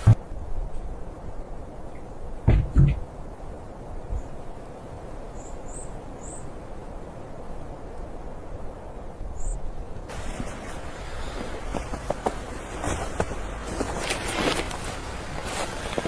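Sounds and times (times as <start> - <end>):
wind blowing with low rumble: 0.0 - 16.0
loud hiss: 10.0 - 12.7.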